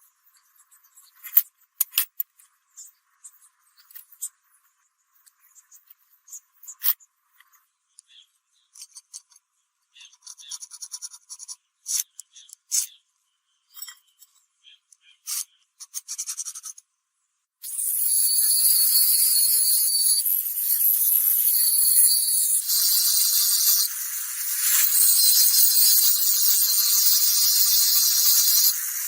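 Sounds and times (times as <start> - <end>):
fast scraping strokes on metal: 17.7 - 29.0.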